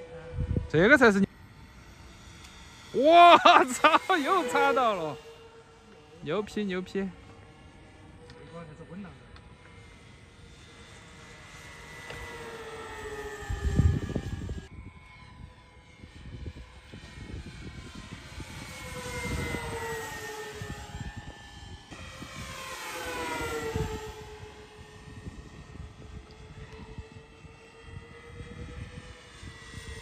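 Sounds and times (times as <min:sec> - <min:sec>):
model airplane motor whining: 0:00.0 - 0:30.0.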